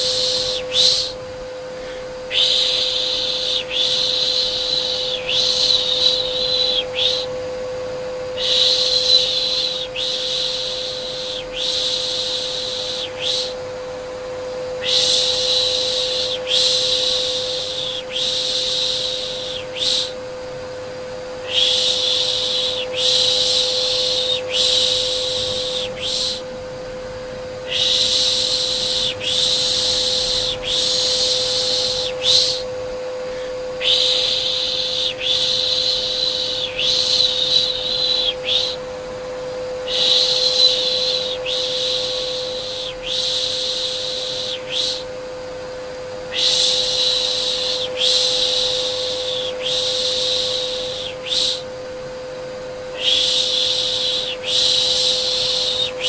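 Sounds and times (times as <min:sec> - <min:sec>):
vacuum cleaner hum: 0:00.0 - 0:56.0
person shushing: 0:01.8 - 0:07.3, 0:08.4 - 0:13.6, 0:14.8 - 0:20.2, 0:21.4 - 0:26.5, 0:27.7 - 0:38.8.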